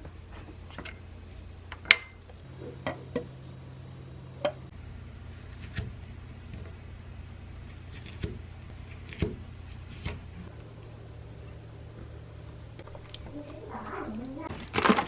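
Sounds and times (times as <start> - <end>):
low steady hum: 2.4 - 4.7, 10.5 - 14.5.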